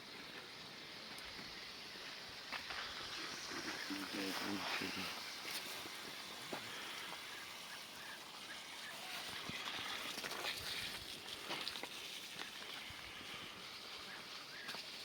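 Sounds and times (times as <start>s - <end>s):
steady outdoor hiss: 0.0s - 15.0s
faint animal calls: 6.8s - 10.1s.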